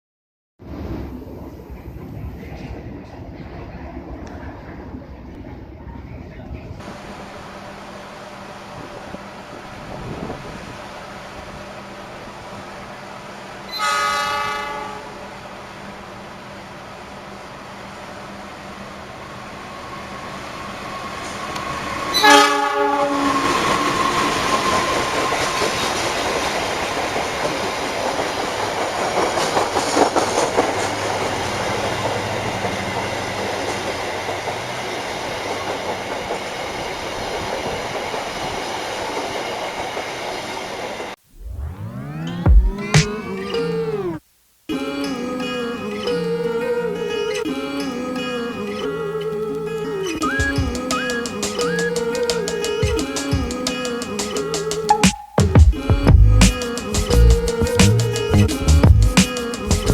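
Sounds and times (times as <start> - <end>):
train running on rails: 0.7 - 41.2, 50.2 - 55.0
train horn: 13.7 - 15.4, 22.1 - 24.4.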